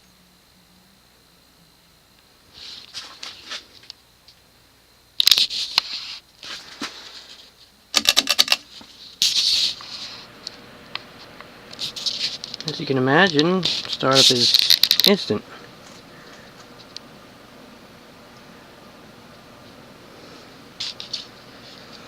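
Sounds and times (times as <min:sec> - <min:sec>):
handling rustling and scraping: 0:05.3 - 0:17.0.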